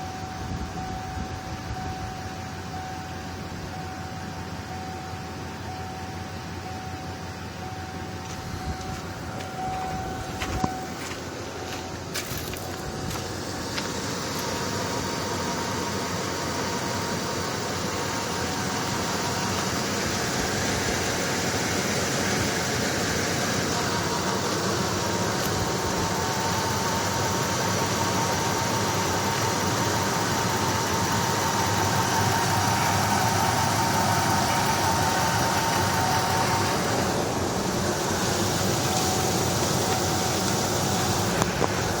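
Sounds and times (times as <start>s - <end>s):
thin steady whine: 0.0s - 42.0s
van engine idling roughly: 0.0s - 42.0s.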